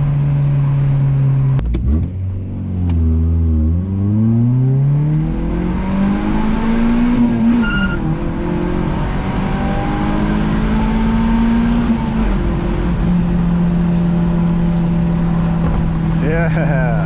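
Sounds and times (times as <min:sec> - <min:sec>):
car engine revving: 0:00.0 - 0:17.0
brief high tone: 0:07.6 - 0:08.0.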